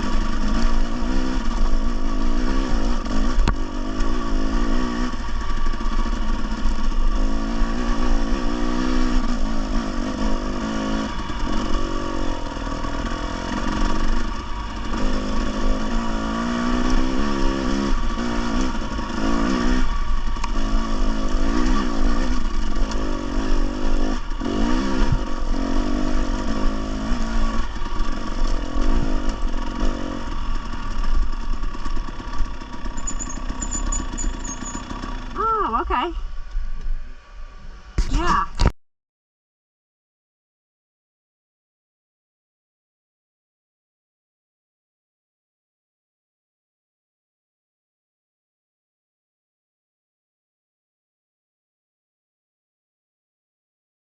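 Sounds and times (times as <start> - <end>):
dirt bike engine revving: 0.0 - 36.1.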